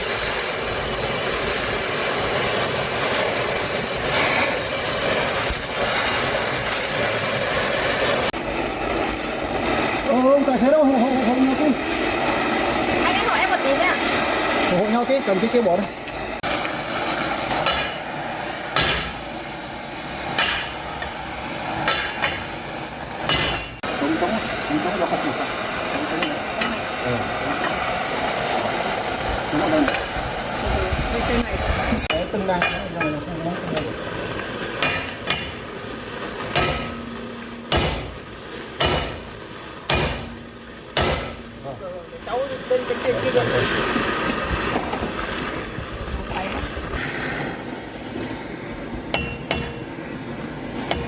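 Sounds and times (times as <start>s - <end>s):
hammer striking metal: 17.5s - 18.1s, 18.7s - 19.3s, 20.3s - 21.2s, 21.8s - 22.6s, 23.2s - 23.9s, 32.0s - 33.2s, 34.8s - 35.7s, 36.4s - 39.3s, 39.9s - 41.7s, 49.1s - 50.0s, 50.8s - 51.0s.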